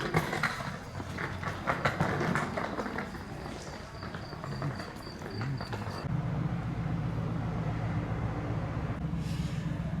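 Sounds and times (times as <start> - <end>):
low engine hum: 6.0 - 10.0.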